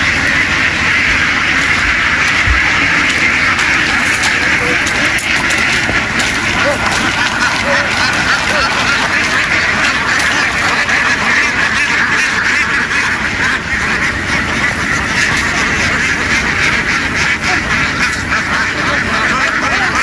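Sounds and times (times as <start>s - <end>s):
flock of ducks quacking: 0.0s - 20.0s.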